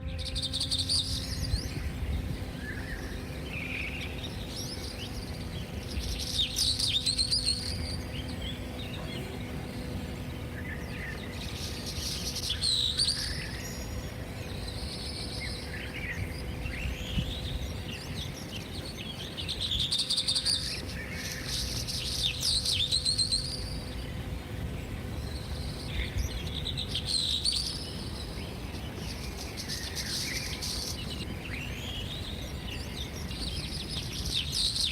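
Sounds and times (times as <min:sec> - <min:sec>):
birds singing and chirping: 0:00.0 - 0:34.9
faint steady hum: 0:00.0 - 0:34.9.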